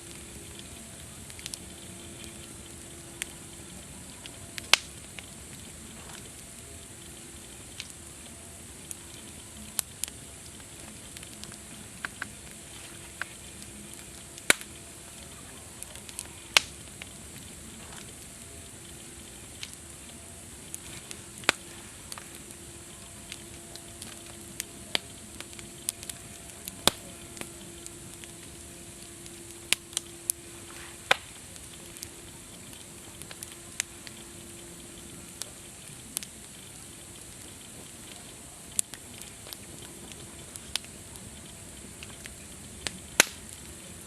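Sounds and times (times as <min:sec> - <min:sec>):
campfire crackling and popping: 0:00.0 - 0:44.0
faint steady tone: 0:00.0 - 0:44.0.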